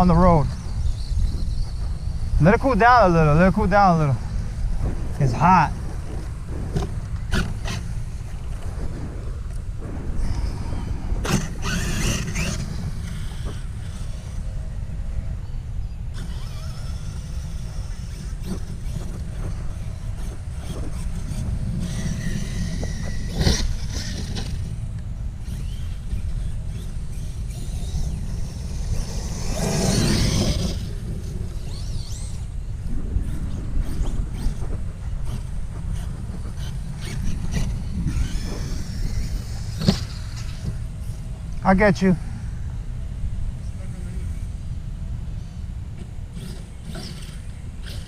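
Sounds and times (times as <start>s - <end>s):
wind rumbling on microphone: 0.0s - 48.0s
electric motor whine: 9.4s - 41.6s.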